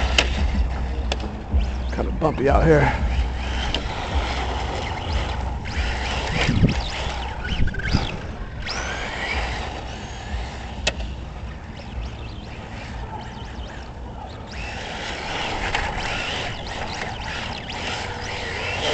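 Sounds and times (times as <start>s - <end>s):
electric motor whine: 0.0s - 18.9s
tyres and chassis rattling: 0.0s - 18.9s.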